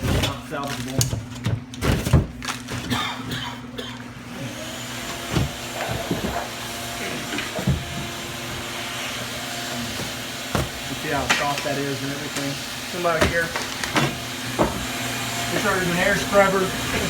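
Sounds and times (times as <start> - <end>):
electric blower whirring: 4.1 - 17.0.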